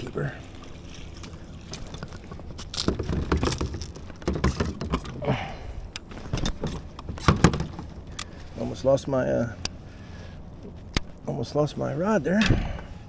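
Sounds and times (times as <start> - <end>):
fishing gear knocking on kayak: 2.8 - 5.1.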